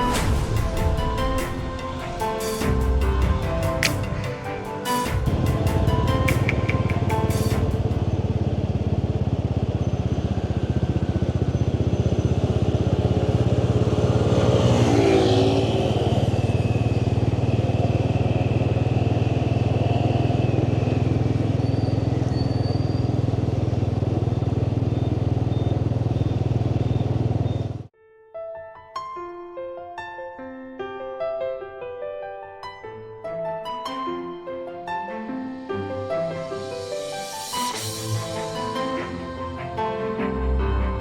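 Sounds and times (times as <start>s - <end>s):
motorbike engine running: 5.1s - 27.9s.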